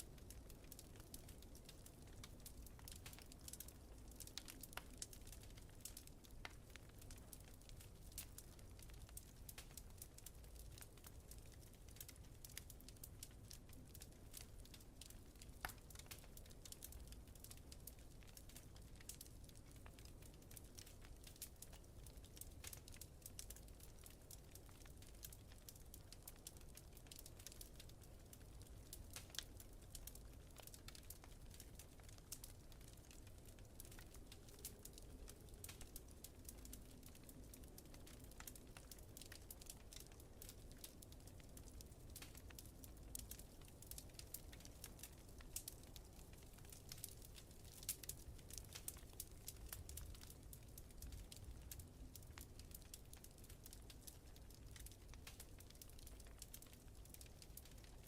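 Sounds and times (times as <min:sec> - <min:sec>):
wood fire crackling: 0:00.0 - 0:58.0
sharp pops from fire: 0:42.1 - 0:50.3.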